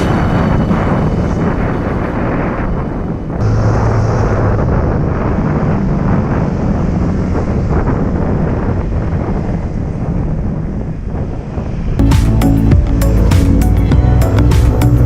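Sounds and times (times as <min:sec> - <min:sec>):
motorcycle engine: 0:00.0 - 0:09.0
wind buffeting microphone: 0:00.0 - 0:15.0.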